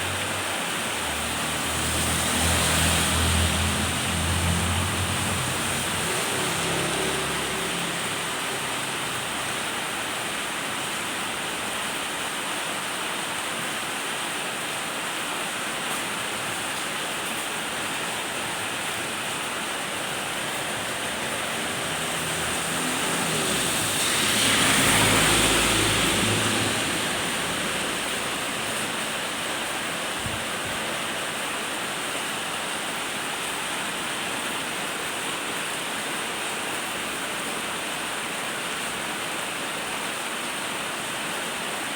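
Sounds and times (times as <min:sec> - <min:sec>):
vehicle passing: 0:00.0 - 0:10.2, 0:19.4 - 0:31.1
steady rain hiss: 0:00.0 - 0:41.9.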